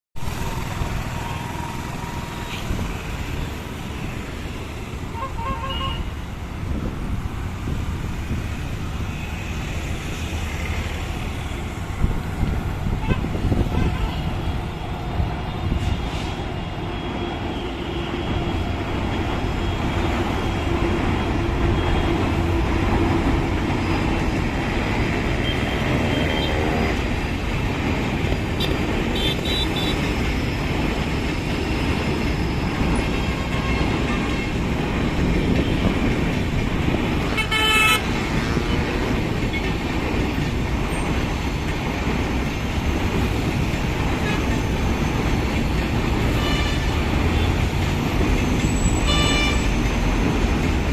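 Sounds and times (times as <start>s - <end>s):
road traffic rumble: 0.2s - 50.9s
vehicle horn toots: 37.4s - 38.6s, 49.0s - 49.7s.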